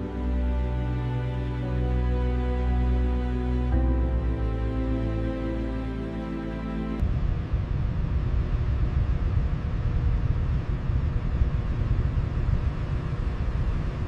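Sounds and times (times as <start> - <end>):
background music: 0.0 - 7.0
steady low rumbling noise: 0.0 - 14.0.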